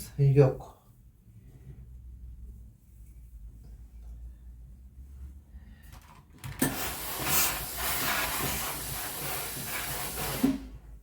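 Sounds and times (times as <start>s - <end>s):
steam iron hissing: 6.6s - 10.8s.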